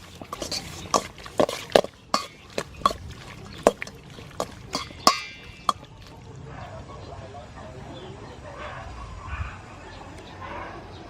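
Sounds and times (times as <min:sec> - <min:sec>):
utensil clinking against bowl: 0:00.0 - 0:06.3.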